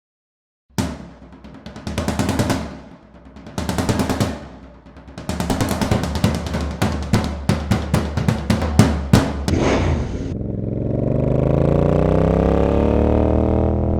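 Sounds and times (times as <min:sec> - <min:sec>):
motorcycle engine running: 0:10.3 - 0:13.9.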